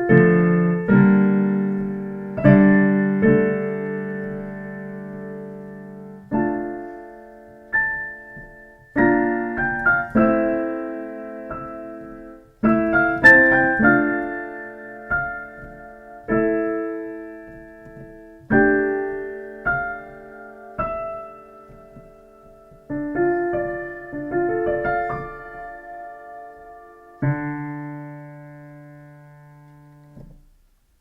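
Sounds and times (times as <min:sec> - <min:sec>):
slow gentle piano piece: 0:00.0 - 0:31.0.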